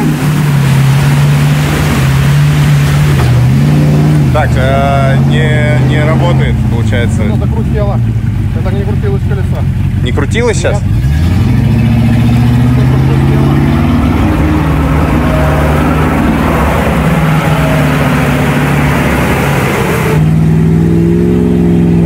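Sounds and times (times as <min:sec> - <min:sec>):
car engine at high revs: 0:00.0 - 0:22.0
loud rushing noise: 0:11.5 - 0:20.7.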